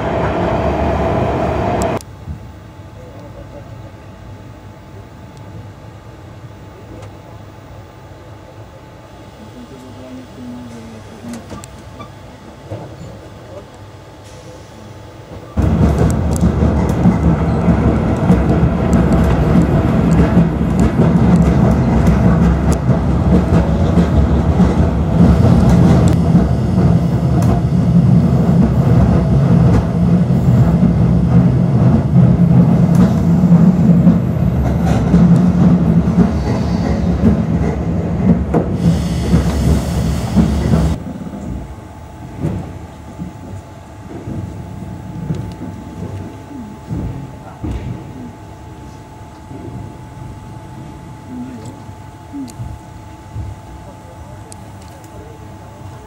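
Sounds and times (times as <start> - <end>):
train rumbling inside carriage: 0.0 - 56.0
wheels clattering on rails: 15.6 - 41.7.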